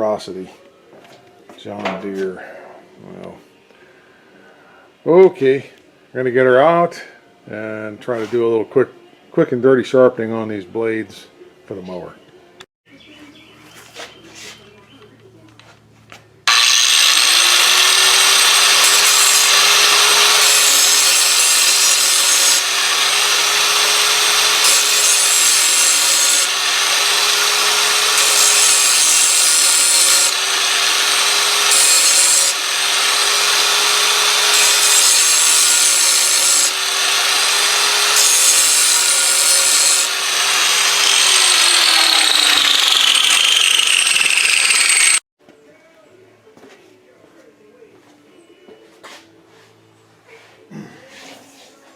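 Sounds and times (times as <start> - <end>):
grinder motor whine: 16.5 - 45.2
grinding steel blade: 16.5 - 45.2.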